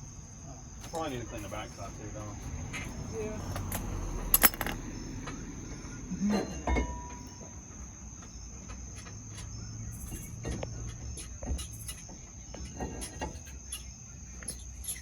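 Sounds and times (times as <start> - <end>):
hand tools clinking on metal: 3.4 - 4.8.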